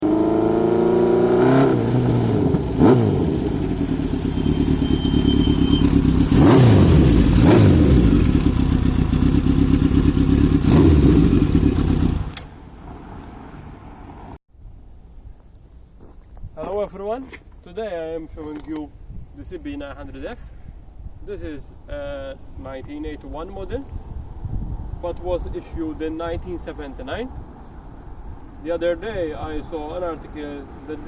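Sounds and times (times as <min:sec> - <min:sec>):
motorcycle engine idling and revving: 0:00.0 - 0:14.4.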